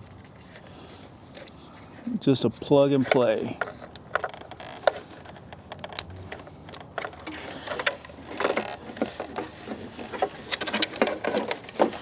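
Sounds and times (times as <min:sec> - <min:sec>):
plastic clicks: 0:03.0 - 0:09.5.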